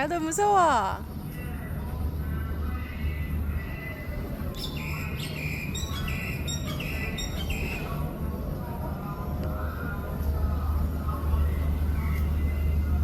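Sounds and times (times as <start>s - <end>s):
steady low hum: 0.0s - 13.0s
bird chirping: 4.6s - 8.0s.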